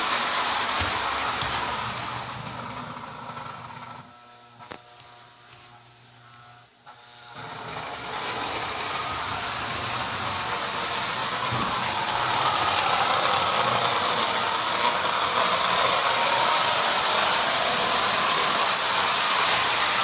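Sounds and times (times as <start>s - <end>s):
toy train whirring rattle: 7.0s - 20.0s.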